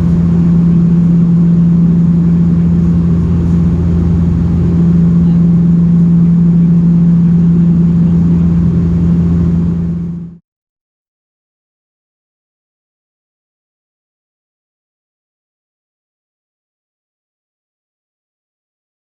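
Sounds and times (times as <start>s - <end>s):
turboprop cabin drone: 0.0s - 10.4s.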